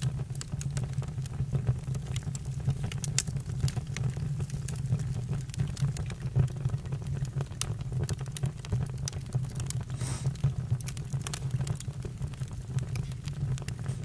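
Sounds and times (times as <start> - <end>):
low rumble of flames: 0.0 - 14.0
wood crackling and popping: 0.0 - 14.0
brief hiss: 10.0 - 10.4.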